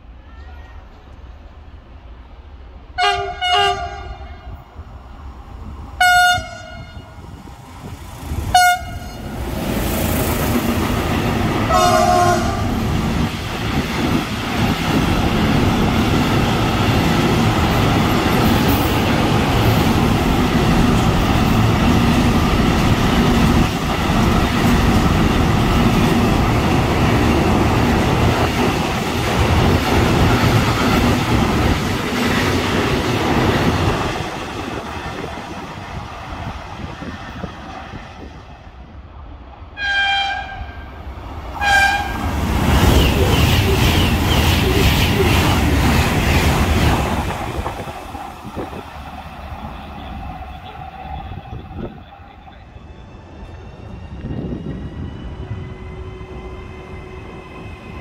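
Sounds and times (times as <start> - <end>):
train horn blasts: 3.0 - 4.6, 6.0 - 7.2, 8.5 - 9.2, 11.7 - 12.7, 39.8 - 40.9, 41.6 - 42.2
freight train wheels clickety-clack: 7.6 - 38.4, 41.6 - 58.0.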